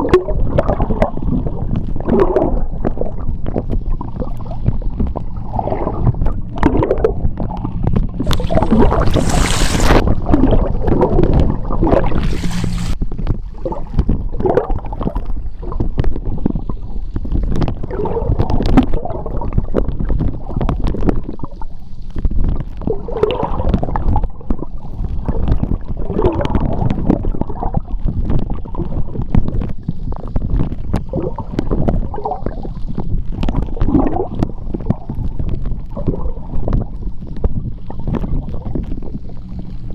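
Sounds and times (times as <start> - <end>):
gurgling bubbles: 0.0 - 21.8, 22.4 - 39.9
underwater rumble: 0.0 - 39.9
hissing water rushes: 8.2 - 13.0.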